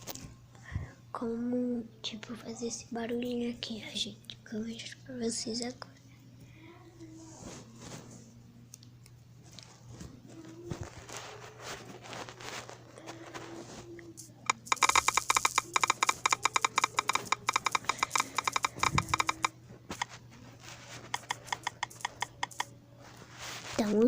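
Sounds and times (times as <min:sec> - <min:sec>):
phone keyboard clicks: 0:14.4 - 0:20.1, 0:21.1 - 0:22.7.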